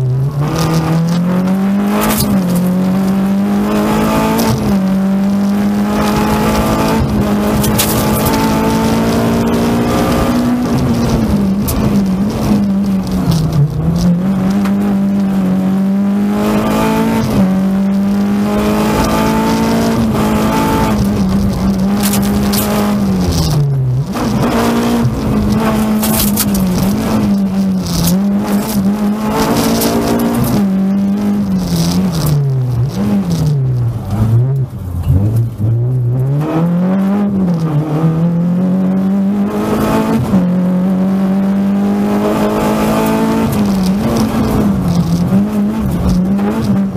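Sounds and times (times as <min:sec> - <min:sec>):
rally car engine revving: 0:00.0 - 0:46.9.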